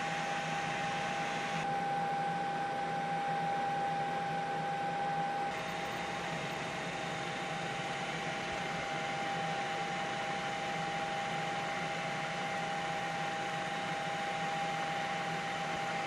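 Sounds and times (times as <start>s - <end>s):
helicopter cabin drone: 0.0s - 16.0s.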